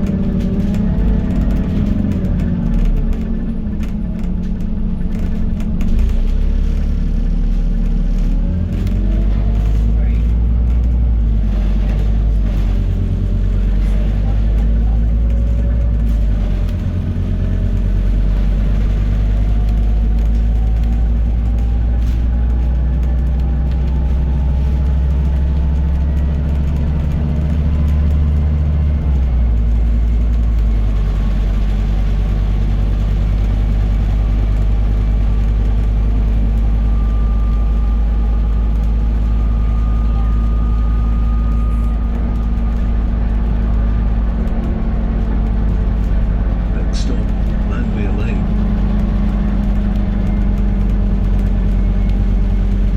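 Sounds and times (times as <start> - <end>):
bus engine drone: 0.0 - 52.9
faint driveline whine: 34.3 - 44.0.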